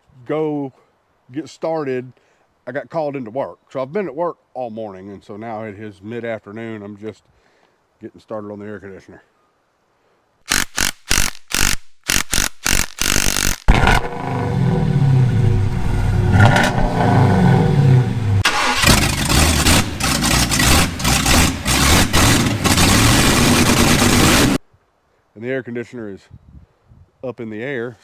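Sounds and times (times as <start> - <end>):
engine cranking and revving: 12.1 - 24.6.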